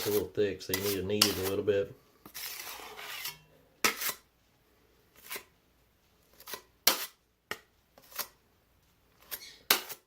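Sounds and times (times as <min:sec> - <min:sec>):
drywall knives scraping compound: 0:00.0 - 0:04.3, 0:05.1 - 0:05.5, 0:06.2 - 0:07.2, 0:08.0 - 0:08.4, 0:09.2 - 0:10.0.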